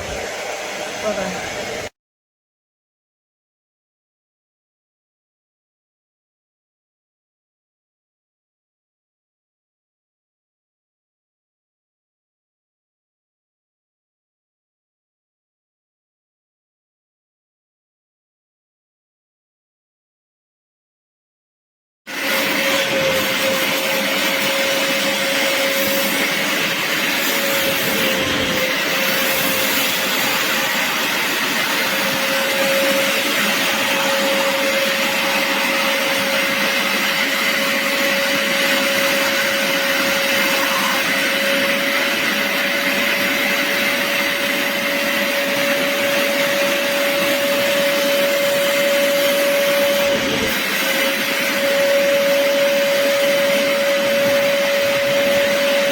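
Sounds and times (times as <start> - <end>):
carpet cleaner motor whine: 0.0 - 1.9, 22.1 - 55.9.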